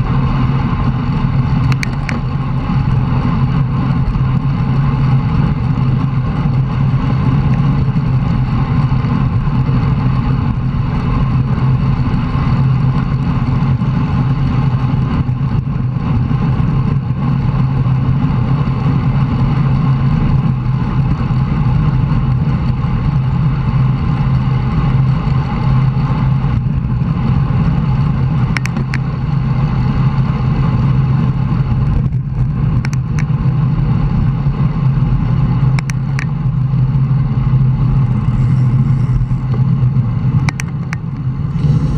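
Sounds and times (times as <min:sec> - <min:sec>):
bicycle road rumble: 0:00.0 - 0:41.9
wind on microphone: 0:00.0 - 0:41.9
sharp clicks: 0:01.6 - 0:02.2, 0:28.6 - 0:29.1, 0:32.8 - 0:33.3, 0:35.8 - 0:36.4, 0:40.5 - 0:41.3.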